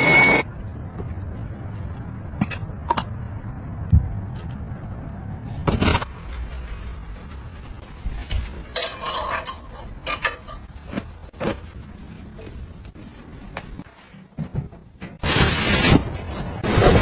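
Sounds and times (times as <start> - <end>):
household objects clicking and clinking: 8.8 - 11.1.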